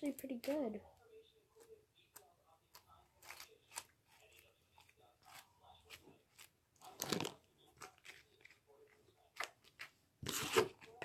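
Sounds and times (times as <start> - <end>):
slime crackling and squelching: 2.1 - 10.6.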